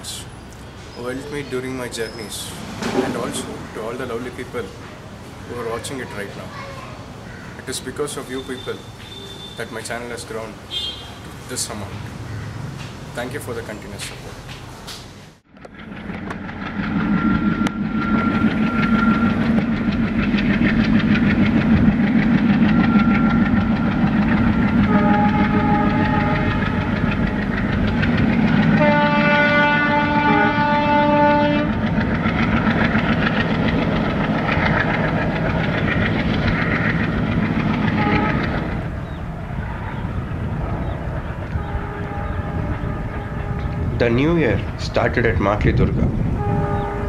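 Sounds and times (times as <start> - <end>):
train rumble and wheel noise: 0.0 - 7.2, 12.8 - 47.0
locomotive horn: 24.8 - 27.2, 28.7 - 31.9, 37.9 - 38.9, 41.4 - 44.0, 46.2 - 47.0.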